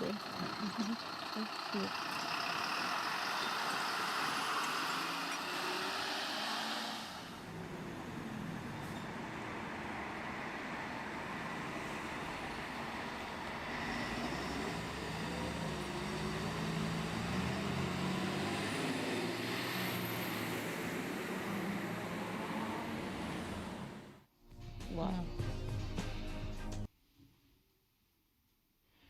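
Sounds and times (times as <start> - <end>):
fire truck engine running: 0.0 - 5.4, 7.3 - 24.2
road traffic noise: 0.0 - 24.3.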